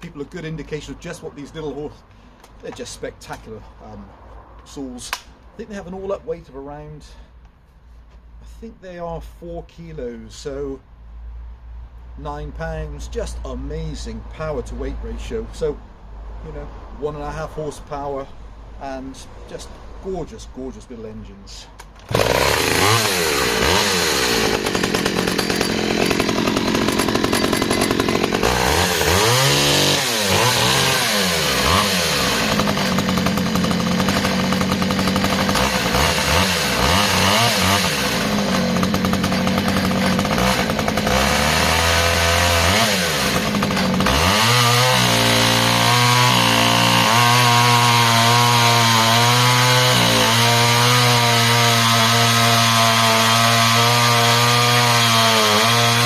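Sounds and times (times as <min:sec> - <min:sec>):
chainsaw cutting timber: 0:22.0 - 0:56.0
chainsaw engine revving: 0:22.0 - 0:56.0.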